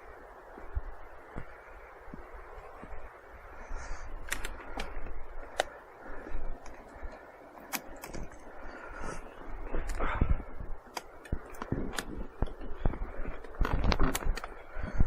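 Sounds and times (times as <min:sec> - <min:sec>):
sharp clicks and knocks: 0:10.9 - 0:14.6.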